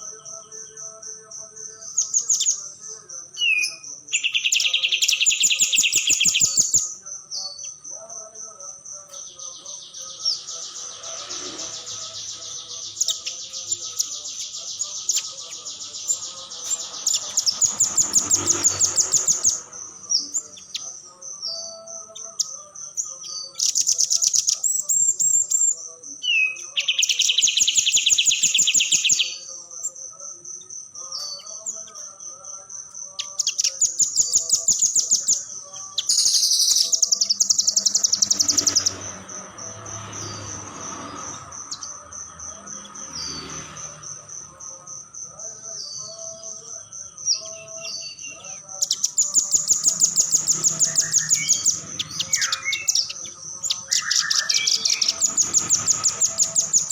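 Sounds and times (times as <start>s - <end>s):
fast high-pitched pulsing chirp: 0.0s - 56.9s
bird giving rapid high trills: 9.2s - 25.7s, 33.2s - 42.0s, 47.3s - 56.9s.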